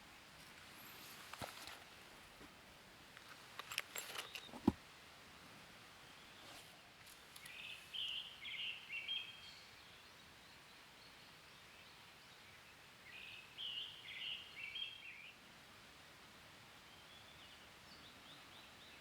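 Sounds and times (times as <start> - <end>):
faint steady background noise: 0.0 - 19.0
songbird chirping: 3.2 - 4.8, 5.9 - 15.4, 16.8 - 19.0.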